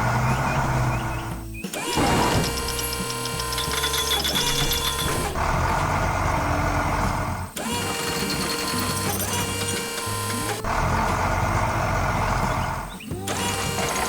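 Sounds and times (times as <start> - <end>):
small motor whirring: 0.0 - 14.0.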